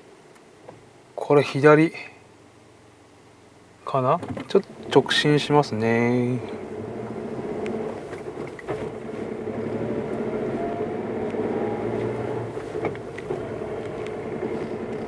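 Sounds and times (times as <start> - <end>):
car engine running: 4.6 - 15.0
tyres rolling over gravel: 6.0 - 15.0.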